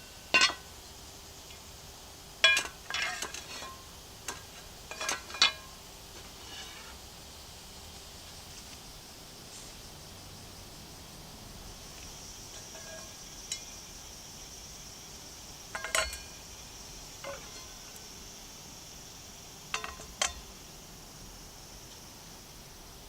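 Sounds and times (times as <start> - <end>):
high-pitched insect drone: 0.0 - 23.0
metallic clinks: 15.7 - 16.4.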